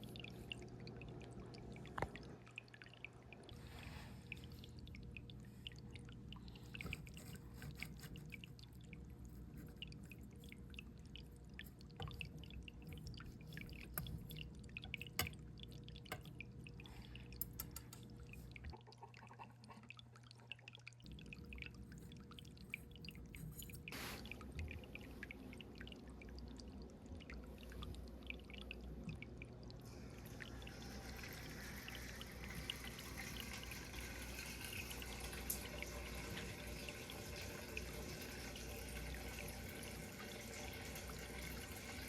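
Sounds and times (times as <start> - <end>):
water dripping and trickling: 0.0 - 42.0.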